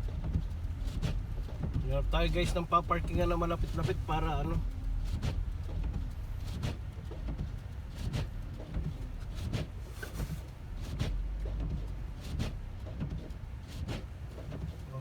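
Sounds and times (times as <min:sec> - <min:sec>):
road and engine rumble: 0:00.0 - 0:15.0
tyres swishing through snow: 0:09.3 - 0:11.2.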